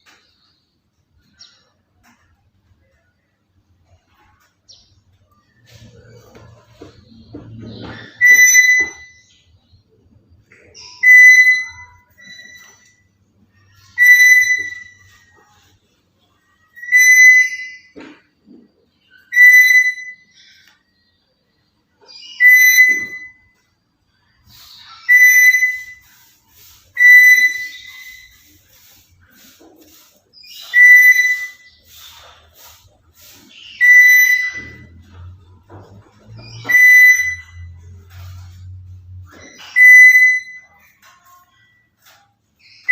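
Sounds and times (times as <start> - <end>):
parrot whistled calls: 7.9 - 9.4, 10.8 - 13.0, 13.7 - 15.7, 16.7 - 18.0, 19.1 - 20.7, 22.0 - 23.5, 24.5 - 29.4, 30.4 - 35.3, 36.3 - 38.5, 39.3 - 41.0, 42.6 - 42.9.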